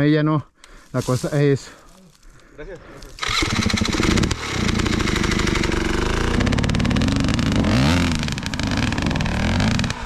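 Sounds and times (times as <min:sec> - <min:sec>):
dirt bike engine revving: 0:03.2 - 0:10.0.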